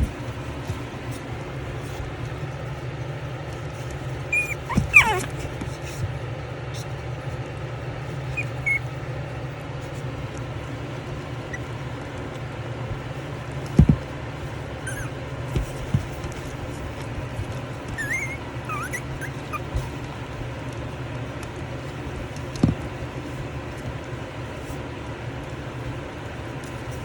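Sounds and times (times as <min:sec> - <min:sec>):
steady low hum: 0:00.0 - 0:27.0
puppies squeaking: 0:04.2 - 0:05.5, 0:08.1 - 0:09.0, 0:11.1 - 0:12.1, 0:14.8 - 0:15.2, 0:17.8 - 0:20.0.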